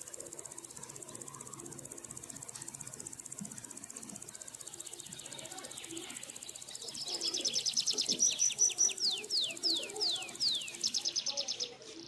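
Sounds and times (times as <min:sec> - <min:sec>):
faint high insect trill: 0:00.0 - 0:12.0
lovebirds chirping and whistling: 0:04.9 - 0:11.8.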